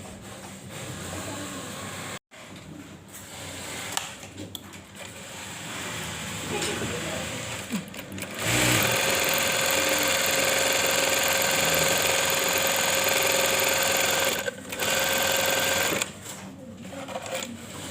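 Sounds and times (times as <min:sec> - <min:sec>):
sewing machine running: 0:07.4 - 0:16.1.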